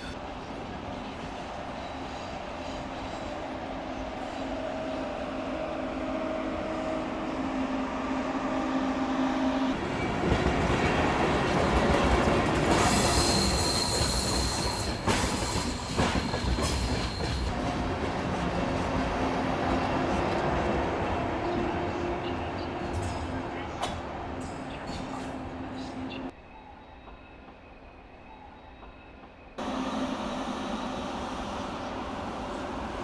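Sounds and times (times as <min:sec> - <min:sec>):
train rolling on rails: 0:00.0 - 0:33.0
high wheel squeal: 0:12.6 - 0:17.5.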